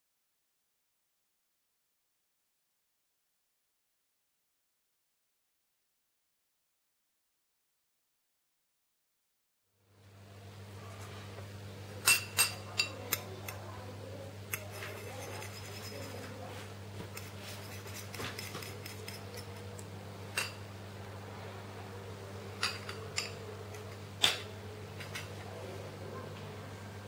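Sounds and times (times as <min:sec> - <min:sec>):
low electrical hum: 0:09.8 - 0:27.0
dishes and utensils clinking: 0:12.0 - 0:13.7, 0:14.5 - 0:20.7, 0:22.6 - 0:25.4.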